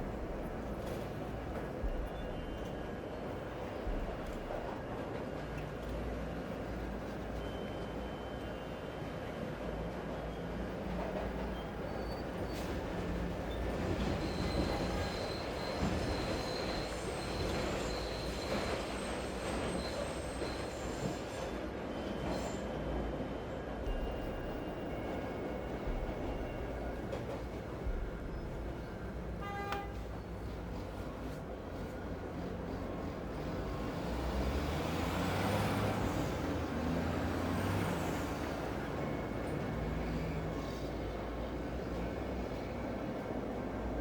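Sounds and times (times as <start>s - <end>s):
city noise: 0.0s - 44.0s
train running on rails: 0.0s - 44.0s
wheel squeal: 13.5s - 22.8s.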